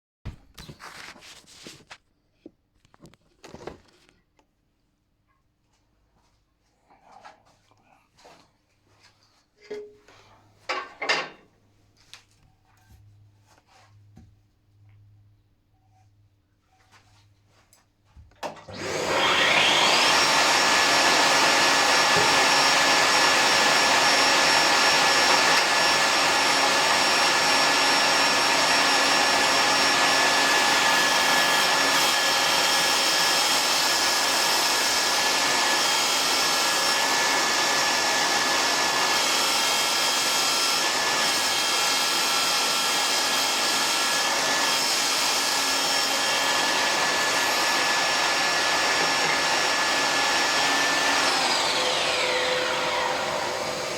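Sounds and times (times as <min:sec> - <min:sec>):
saw motor whining: 0:18.7 - 0:53.9.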